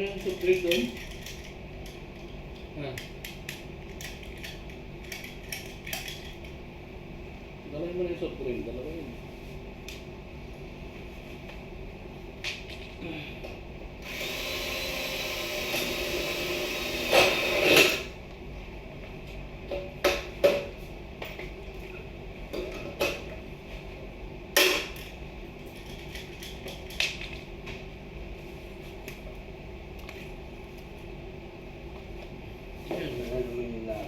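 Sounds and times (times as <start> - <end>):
power drill whining: 14.0 - 18.1.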